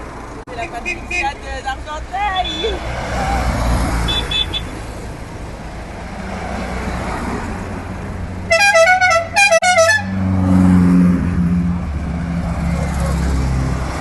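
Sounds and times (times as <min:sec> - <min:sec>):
engine rumble: 0:00.0 - 0:14.0
musical car horn: 0:04.0 - 0:04.8, 0:08.5 - 0:10.2.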